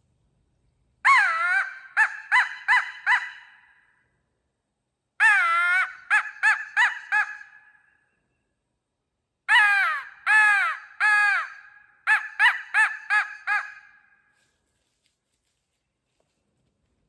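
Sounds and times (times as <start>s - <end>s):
crow call cawing: 1.1s - 3.7s, 5.2s - 7.8s, 9.5s - 14.2s.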